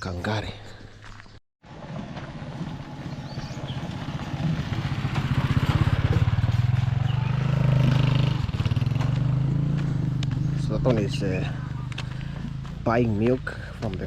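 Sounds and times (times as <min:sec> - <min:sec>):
small motorcycle engine running: 0:01.7 - 0:12.8.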